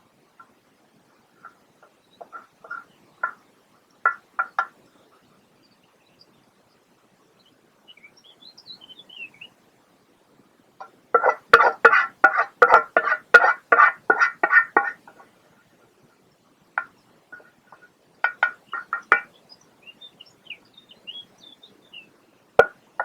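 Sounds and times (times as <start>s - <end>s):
harsh repeated bird calls: 1.4s - 5.2s, 11.1s - 15.3s, 16.8s - 23.0s
faint high bird chirps: 1.4s - 9.6s, 16.2s - 22.7s.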